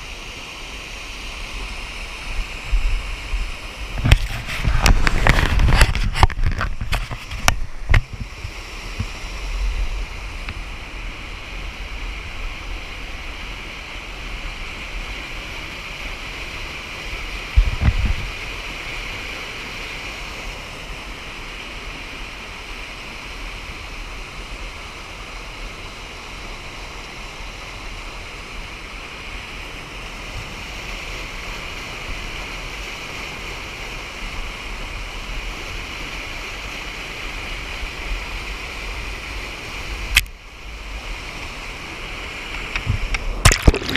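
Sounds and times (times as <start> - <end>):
creek water rushing: 0.0 - 43.9.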